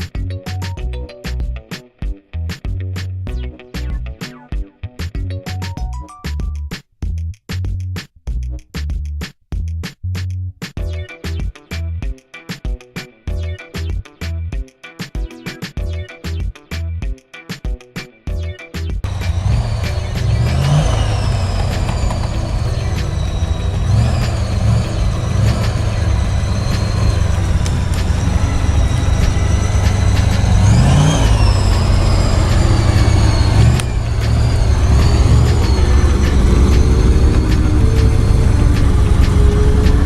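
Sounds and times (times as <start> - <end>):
music: 0.0 - 40.0
truck engine revving with whine: 19.1 - 40.0.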